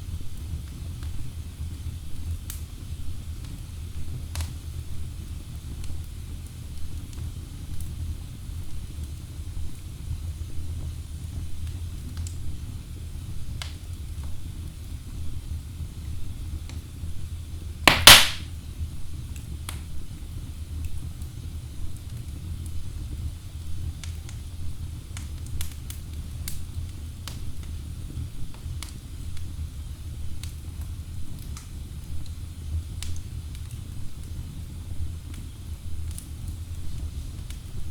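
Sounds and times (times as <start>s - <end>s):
fire rumbling: 0.0s - 37.9s
logs crackling: 17.9s - 18.5s.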